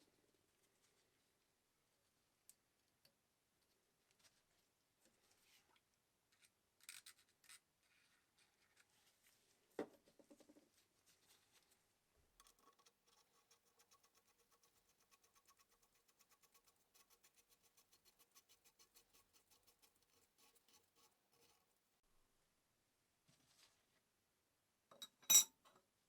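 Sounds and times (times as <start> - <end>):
clicks and scratching on metal parts: 12.4 - 21.8.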